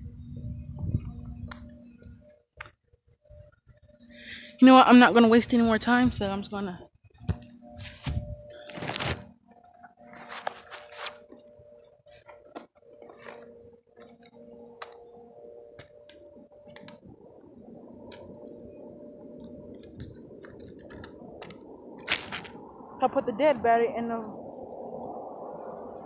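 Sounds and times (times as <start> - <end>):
foam and plastic rustling: 7.6 - 9.3, 10.0 - 11.4, 22.0 - 22.6
small plastic clicks: 15.7 - 17.0.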